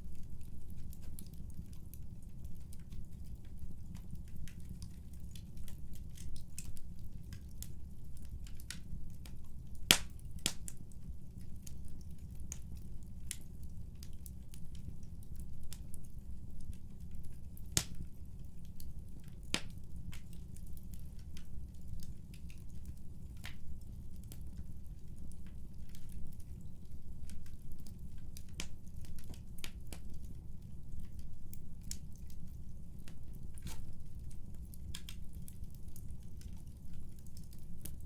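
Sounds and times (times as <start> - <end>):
fire crackles and pops: 0.0 - 38.0.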